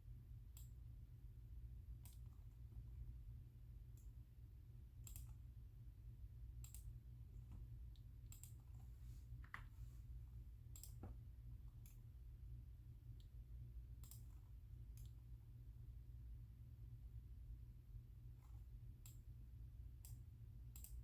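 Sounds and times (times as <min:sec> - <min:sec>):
low steady hum: 0:00.0 - 0:21.0
computer mouse and keyboard clicks: 0:05.0 - 0:05.4, 0:08.3 - 0:09.8, 0:10.7 - 0:11.2, 0:14.0 - 0:15.2.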